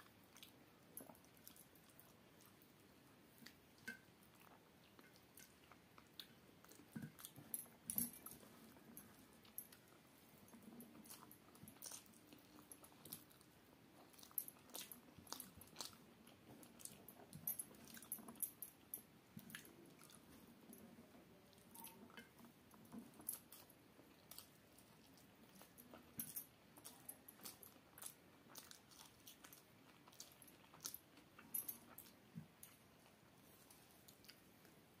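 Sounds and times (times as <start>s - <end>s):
chewing food: 0.0s - 35.0s.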